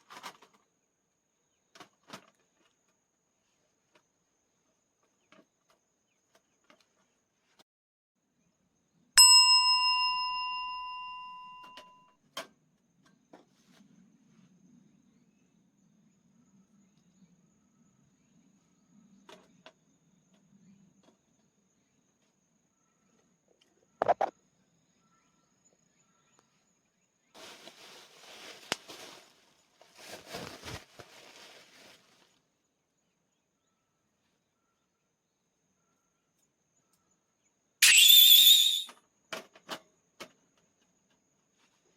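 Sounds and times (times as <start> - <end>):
bell-like metallic strike: 9.2 - 11.9
rustling: 27.4 - 32.4
cricket trilling: 37.8 - 38.9.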